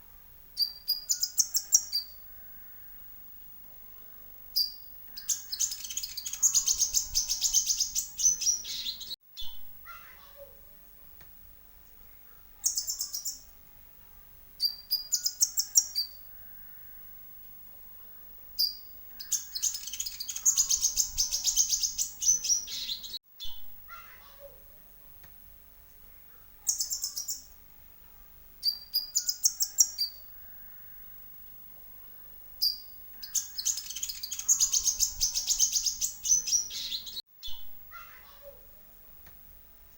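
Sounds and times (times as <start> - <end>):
high bird twittering: 0.6 - 3.0, 4.6 - 9.6, 12.6 - 13.5, 14.6 - 17.0, 18.6 - 23.6, 26.6 - 27.5, 28.6 - 31.0, 32.6 - 37.7
sunbird chittering trills: 4.6 - 9.6, 12.6 - 13.5, 18.6 - 23.2, 26.6 - 27.5, 28.6 - 31.0, 32.6 - 37.6.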